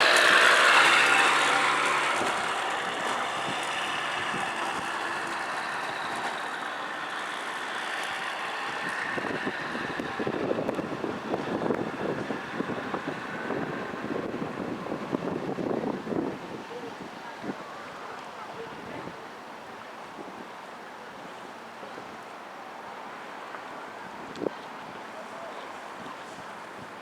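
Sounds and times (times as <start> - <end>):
vehicle engine passing: 0.0 - 15.8
steady outdoor hiss: 0.0 - 27.0.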